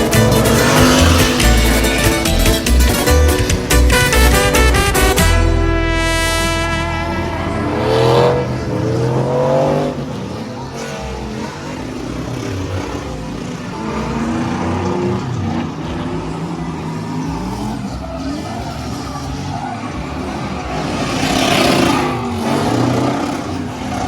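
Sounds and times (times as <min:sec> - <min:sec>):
burst of music: 0:00.0 - 0:09.9
vehicle engine revving: 0:00.0 - 0:24.0.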